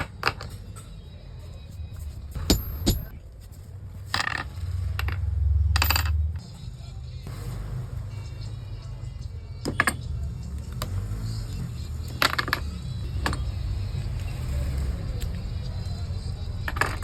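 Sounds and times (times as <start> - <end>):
small metal parts clinking: 1.8 - 3.2, 4.0 - 5.2, 12.0 - 13.6, 16.6 - 17.0.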